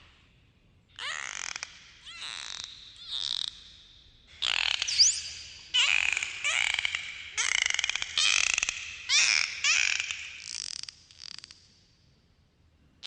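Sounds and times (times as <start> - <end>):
dolphins calling: 4.4 - 10.4.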